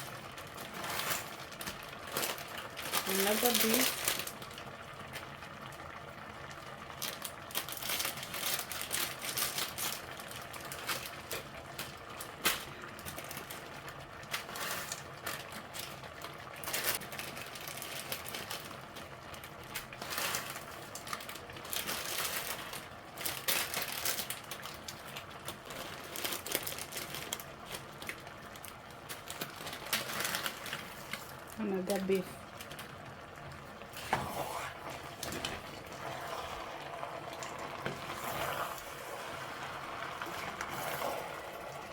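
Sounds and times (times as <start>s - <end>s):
plastic packets crinkling: 0.2s - 4.8s, 6.9s - 33.9s.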